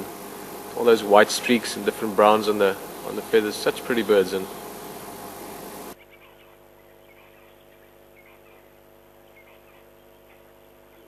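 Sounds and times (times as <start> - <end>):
hiss: 0.0 - 6.0
low electrical hum: 0.0 - 11.0.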